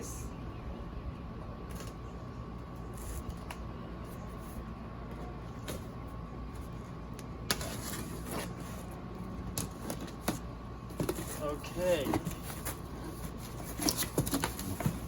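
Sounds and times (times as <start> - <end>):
package rustling and scraping: 9.7 - 15.0.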